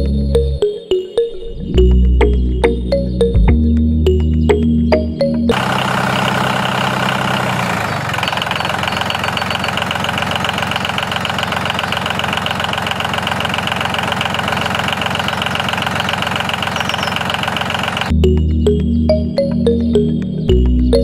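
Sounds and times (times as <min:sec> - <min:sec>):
music: 0:00.0 - 0:05.5, 0:18.1 - 0:21.0
small engine pulsing: 0:05.5 - 0:18.2.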